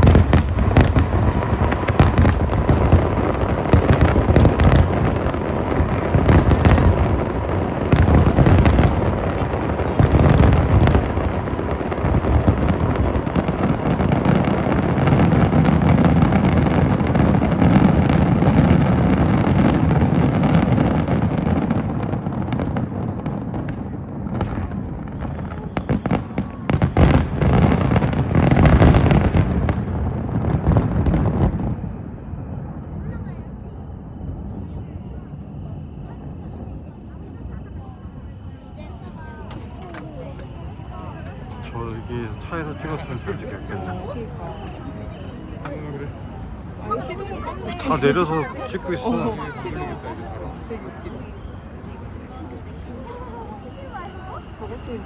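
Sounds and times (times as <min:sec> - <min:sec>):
fireworks bursts and crackle: 0:00.0 - 0:55.0.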